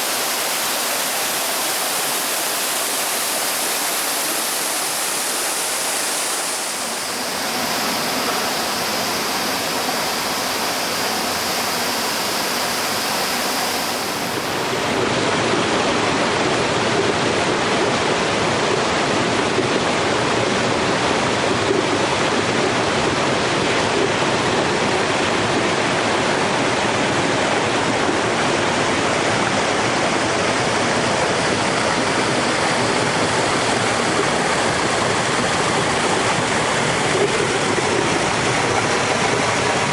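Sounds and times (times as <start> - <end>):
stream water rushing: 0.0 - 15.1, 26.4 - 39.9.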